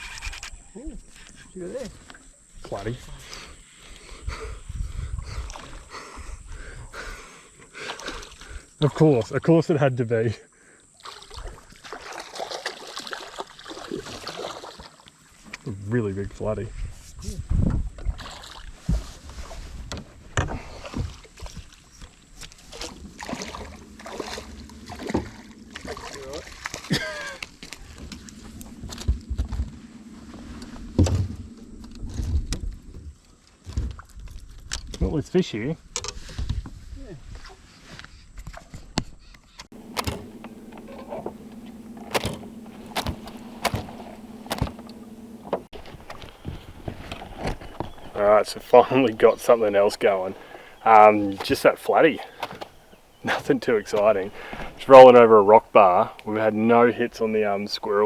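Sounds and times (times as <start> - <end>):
knocks and bumps in boat: 22.4 - 29.8, 39.8 - 54.8
steady low rumble: 22.8 - 32.9, 39.7 - 51.0
electric motor humming: 39.7 - 50.8
sharp knocks on boat: 39.8 - 48.2.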